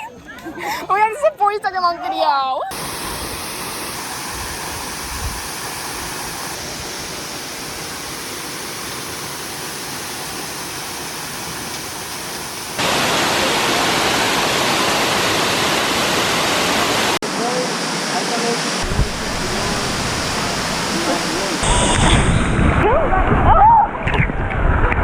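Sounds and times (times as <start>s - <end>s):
fast-moving water rushing: 2.7s - 25.0s.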